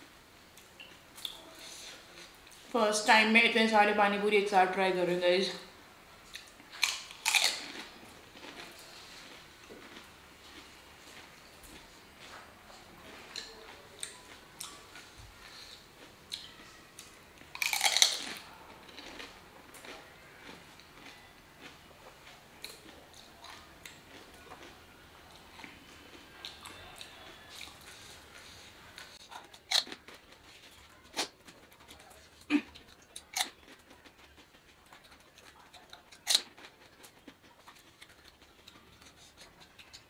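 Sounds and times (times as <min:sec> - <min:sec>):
wet chewing: 0:06.2 - 0:40.0
crisp shells cracking: 0:06.7 - 0:08.7, 0:17.5 - 0:19.3.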